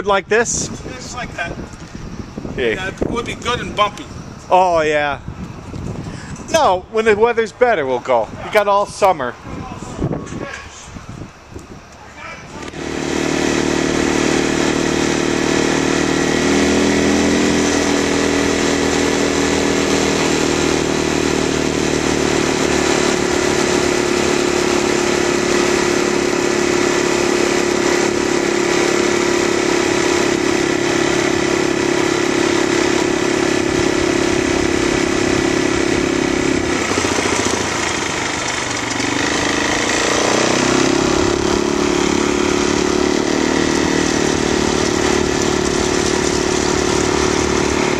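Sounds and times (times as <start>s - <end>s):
biplane radial engine running: 11.2s - 47.9s.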